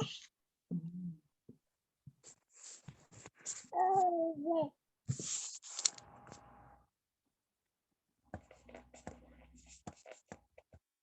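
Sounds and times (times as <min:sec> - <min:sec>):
scratchy rustling and clicks: 0:05.1 - 0:06.4.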